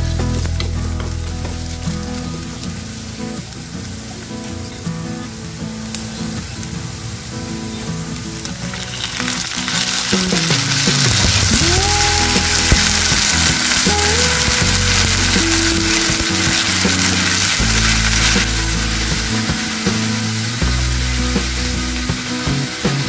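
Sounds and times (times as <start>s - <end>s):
background music: 0.0s - 4.2s, 8.8s - 23.0s
meat and onions sizzling in a pan: 0.0s - 23.0s.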